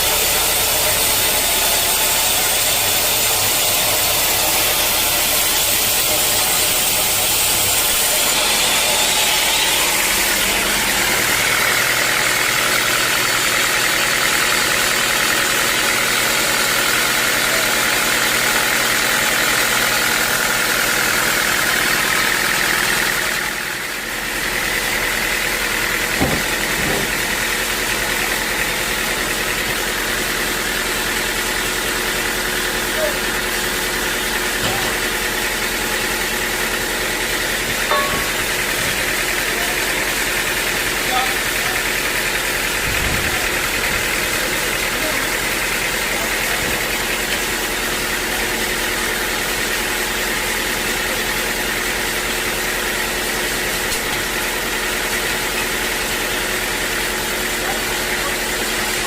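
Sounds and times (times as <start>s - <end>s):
sawmill machinery running: 0.0s - 59.0s
knocks: 26.2s - 27.2s.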